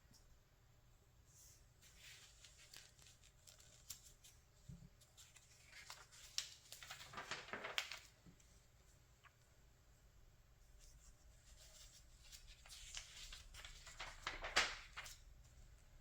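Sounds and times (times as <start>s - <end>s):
magazine pages rustling: 1.9s - 4.4s, 5.1s - 8.3s, 11.5s - 15.3s
page turning: 2.0s - 4.4s, 5.2s - 8.2s, 11.6s - 15.2s.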